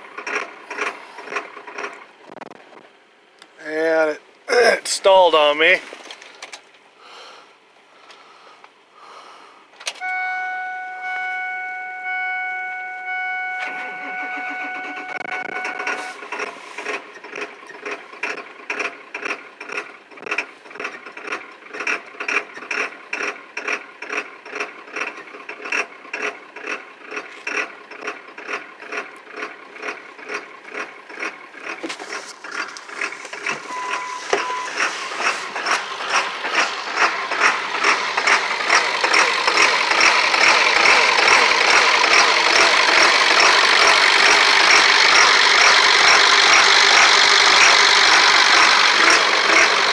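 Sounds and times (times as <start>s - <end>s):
starter cranking diesel engine: 0.0s - 2.8s, 9.9s - 49.9s
dashboard warning chime: 10.0s - 16.2s, 33.5s - 35.4s.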